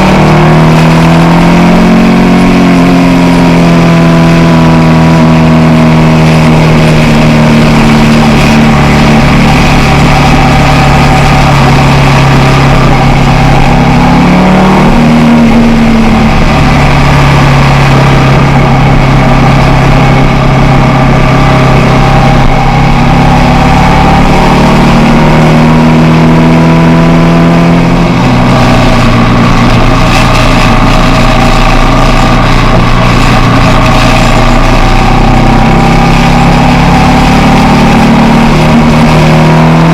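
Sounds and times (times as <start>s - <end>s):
motorcycle engine running: 0.0s - 39.9s
rushing noise: 0.0s - 39.9s.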